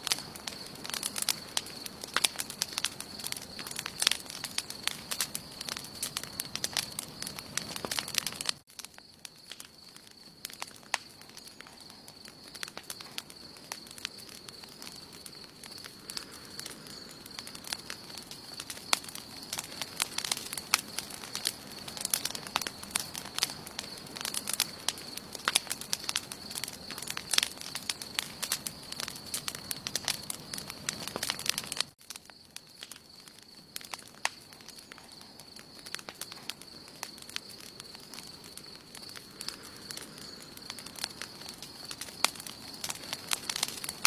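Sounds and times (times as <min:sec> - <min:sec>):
campfire crackling and popping: 0:00.0 - 0:44.0.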